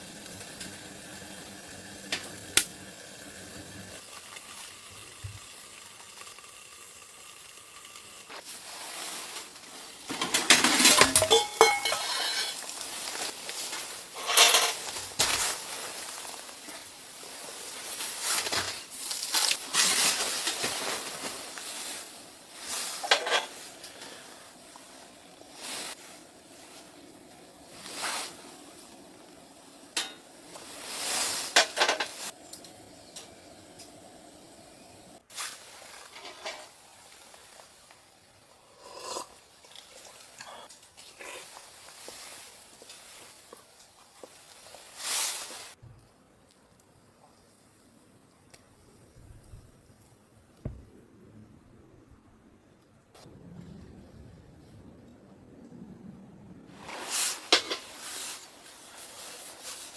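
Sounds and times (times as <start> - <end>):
metal utensils scraping a pot: 10.1 - 12.9, 13.8 - 15.4, 22.9 - 24.1, 57.0 - 58.1.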